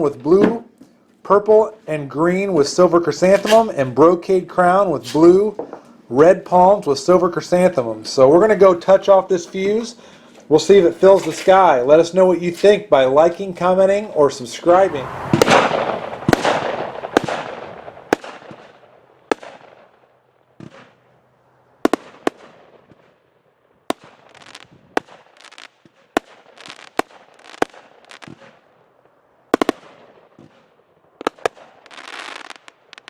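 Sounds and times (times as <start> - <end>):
fireworks bangs: 1.4 - 23.2, 23.8 - 33.0
fireworks hissing and crackling: 3.2 - 3.9, 4.9 - 13.2, 14.3 - 19.8, 23.9 - 28.7, 29.5 - 33.0.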